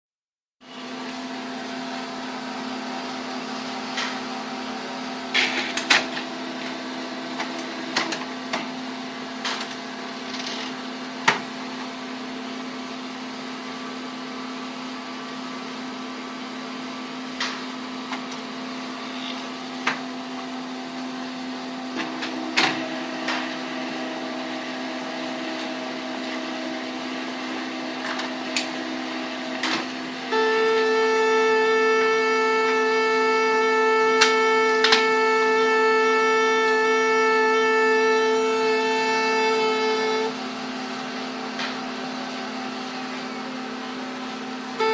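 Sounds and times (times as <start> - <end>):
laser printer humming: 16.9 - 44.9.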